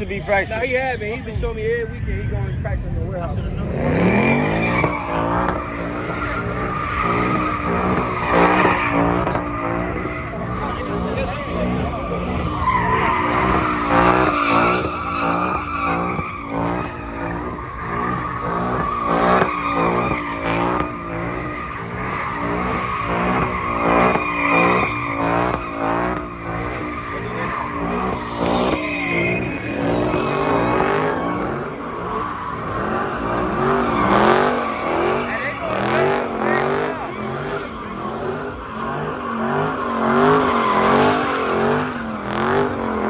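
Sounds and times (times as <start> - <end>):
car engine revving: 0.0 - 43.0
tyres squealing: 3.7 - 43.0.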